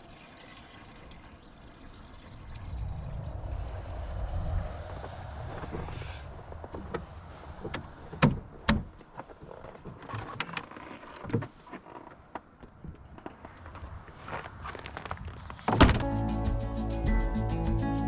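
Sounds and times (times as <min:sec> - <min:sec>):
low vehicle rumble: 0:02.1 - 0:08.6.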